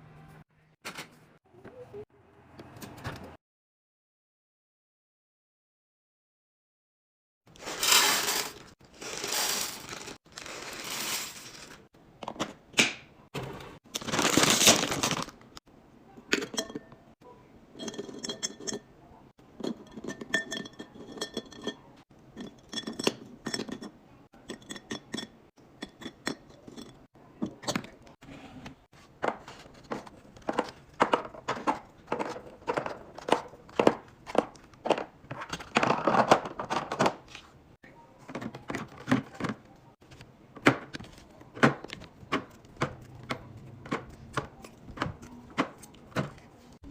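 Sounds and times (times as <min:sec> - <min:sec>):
containers clinking and knocking: 0:16.2 - 0:17.1, 0:17.7 - 0:28.2, 0:29.2 - 0:37.3, 0:38.2 - 0:46.9.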